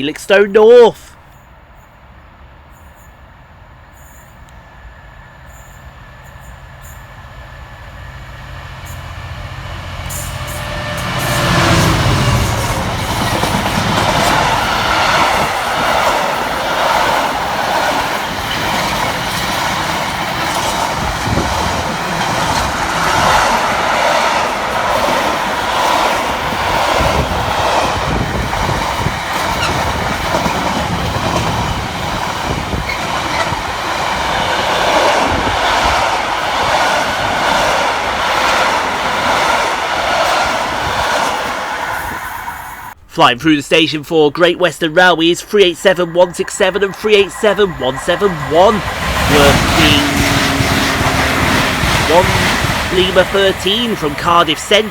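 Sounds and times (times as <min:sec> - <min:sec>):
diesel locomotive passing: 0:00.1 - 0:43.1, 0:44.7 - 0:54.9
wagons clattering over rail joints: 0:10.5 - 0:41.4, 0:46.4 - 0:54.9.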